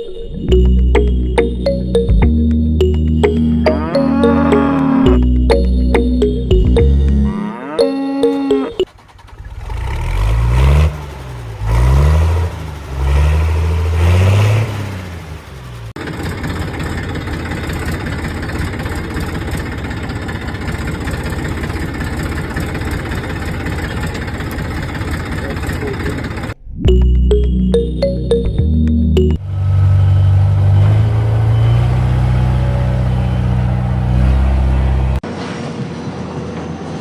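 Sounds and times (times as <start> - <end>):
music: 0.0 - 8.8, 26.8 - 29.4
engine revving: 9.2 - 15.9, 29.5 - 35.2.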